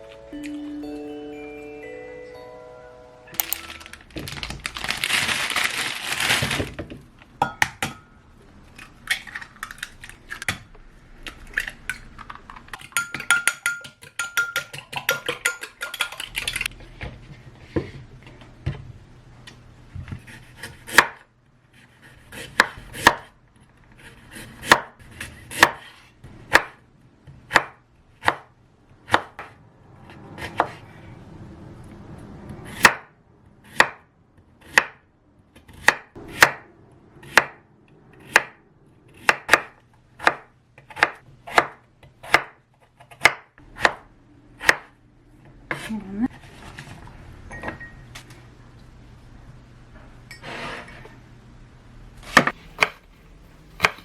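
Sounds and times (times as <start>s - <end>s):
utensils and dishes handled: 3.4s - 6.8s.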